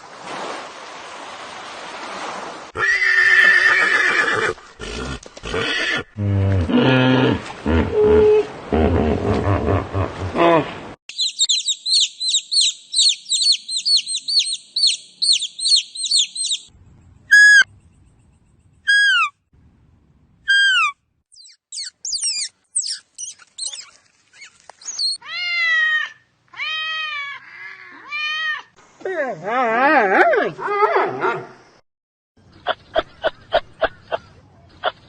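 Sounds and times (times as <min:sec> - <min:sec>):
drawn-out falling calls: 0:11.1 - 0:16.7, 0:20.5 - 0:28.0
falling whistled calls: 0:11.1 - 0:16.7, 0:17.3 - 0:17.7, 0:20.5 - 0:25.2
rapid high bird chirping: 0:11.1 - 0:16.7, 0:20.5 - 0:25.2
pitched animal cry: 0:20.5 - 0:28.7.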